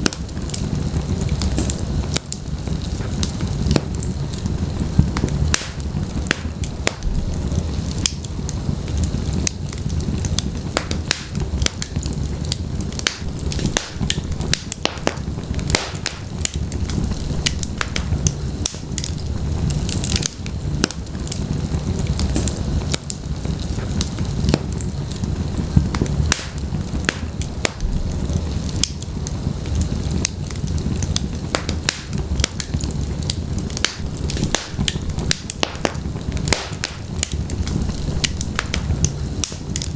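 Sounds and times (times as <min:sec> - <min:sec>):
fire rumbling: 0:00.0 - 0:39.9
wood crackling and popping: 0:00.0 - 0:39.9.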